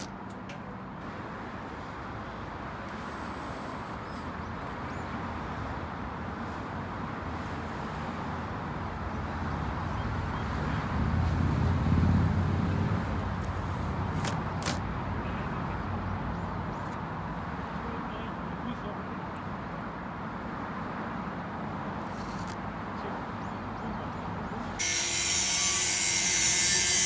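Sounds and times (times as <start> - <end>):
short sharp clicks: 13.4 - 14.8, 22.0 - 22.6.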